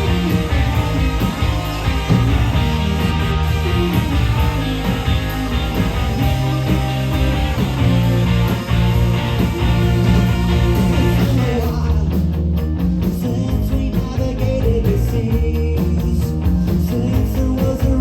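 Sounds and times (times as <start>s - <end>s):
sustained guitar chords: 0.0s - 12.4s
drums steady beat: 0.0s - 18.0s.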